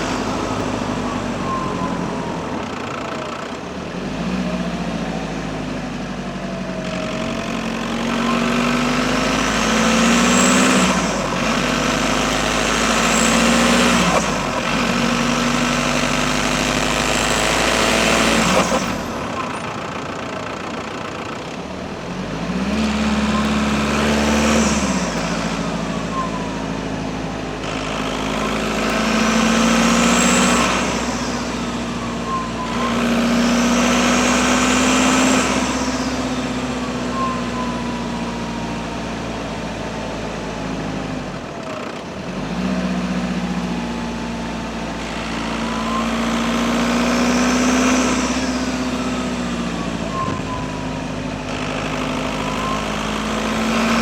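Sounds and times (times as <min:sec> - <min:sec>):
high turbocharger whistle: 0:00.0 - 0:05.6, 0:06.3 - 0:21.4, 0:22.0 - 0:54.0
diesel engine revving: 0:00.0 - 0:54.0.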